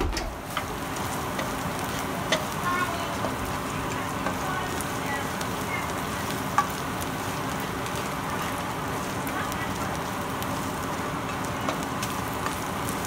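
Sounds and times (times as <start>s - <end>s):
vegetables sizzling in oil: 0.0s - 13.0s
spatula stirring in wok: 0.4s - 13.0s
spatula tapping on pan: 0.5s - 1.6s, 2.3s - 2.6s, 4.0s - 4.4s, 6.5s - 6.8s.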